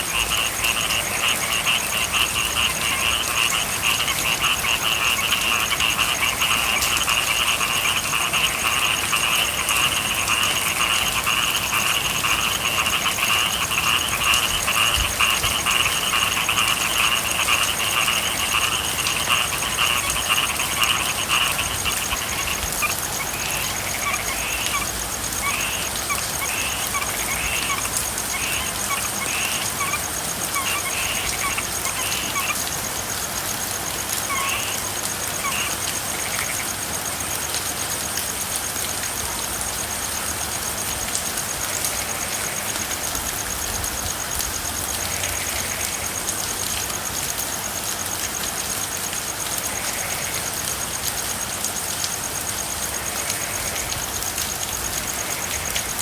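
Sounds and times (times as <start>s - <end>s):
frogs calling: 0.0s - 56.0s
steady rain: 0.0s - 56.0s.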